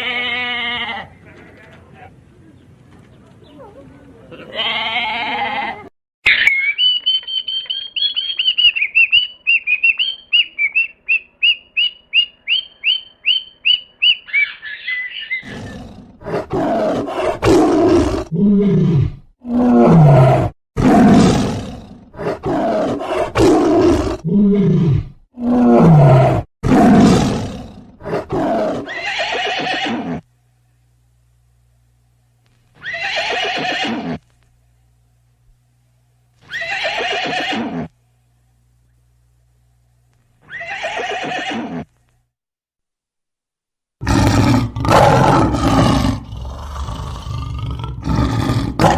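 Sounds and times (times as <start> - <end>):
high animal chirps: 6.3 - 15.8.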